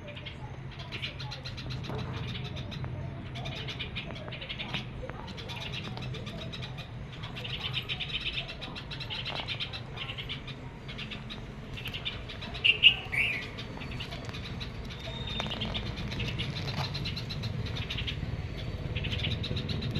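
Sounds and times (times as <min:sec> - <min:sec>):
baby birds cheeping: 0:00.0 - 0:19.9
sharp bird chirps: 0:07.2 - 0:19.9.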